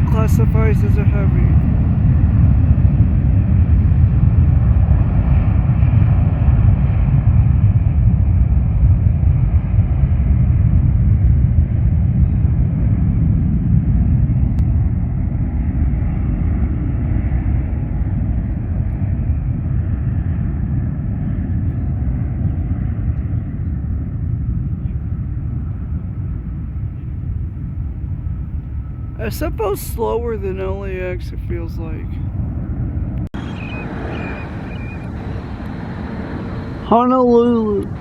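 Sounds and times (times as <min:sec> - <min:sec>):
jet engines on takeoff: 0:00.0 - 0:38.0.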